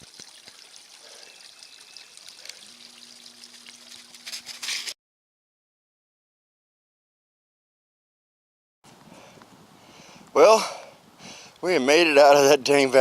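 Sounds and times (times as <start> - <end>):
faint trickling water: 0.0 - 5.0.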